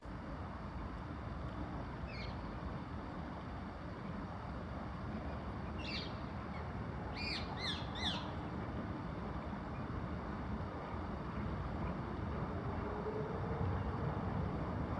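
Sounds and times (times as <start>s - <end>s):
bird calls: 7.2s - 8.4s.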